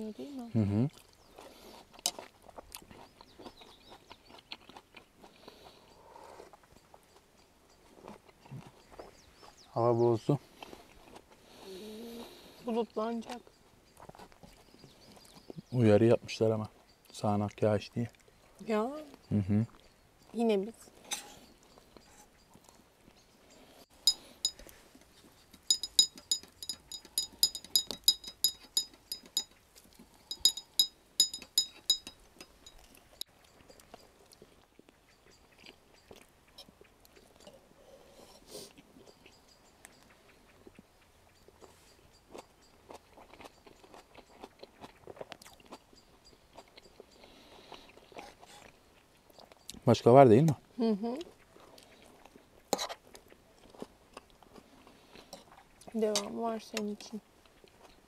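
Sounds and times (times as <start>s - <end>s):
cutlery clinking on dish: 24.1s - 24.7s, 25.6s - 29.6s, 30.3s - 32.8s.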